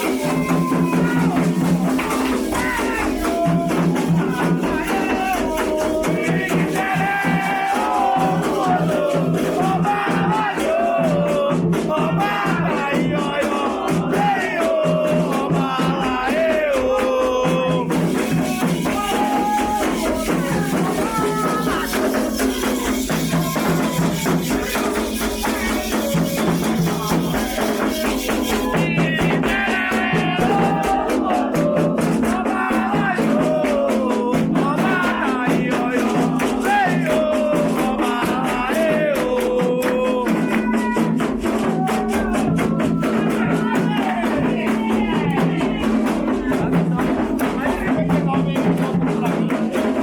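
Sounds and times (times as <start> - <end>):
steady percussion: 0.0 - 50.0
shaken rattles: 18.2 - 28.8.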